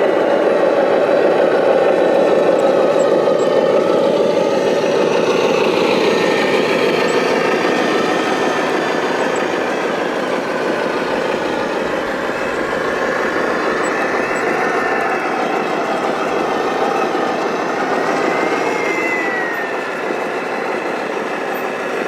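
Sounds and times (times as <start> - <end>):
radio-controlled truck running: 0.0 - 22.0.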